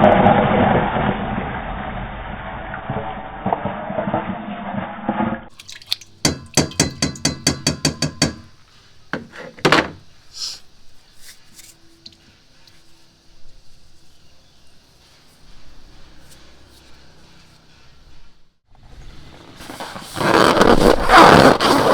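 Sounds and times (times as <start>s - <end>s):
utensil tapping a container: 6.2s - 8.5s.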